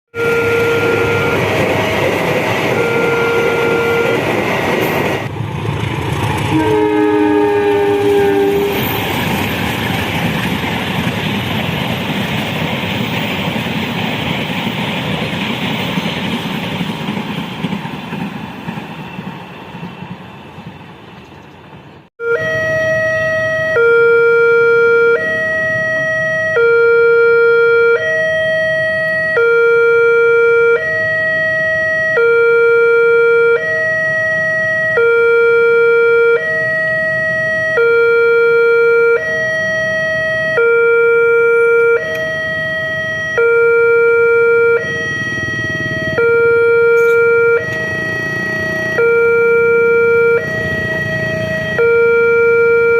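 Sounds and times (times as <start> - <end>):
two-tone crossing alarm: 0.1 - 5.3, 6.5 - 9.9, 22.2 - 52.9.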